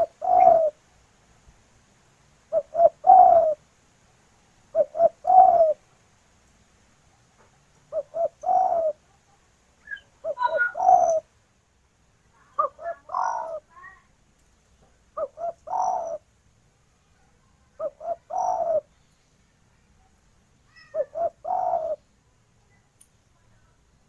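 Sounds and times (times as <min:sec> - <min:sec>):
dove cooing: 0:00.0 - 0:00.8, 0:02.5 - 0:03.6, 0:04.7 - 0:05.8, 0:07.9 - 0:09.0, 0:09.8 - 0:11.3, 0:12.4 - 0:13.7, 0:15.2 - 0:16.3, 0:17.8 - 0:18.9, 0:20.7 - 0:22.0.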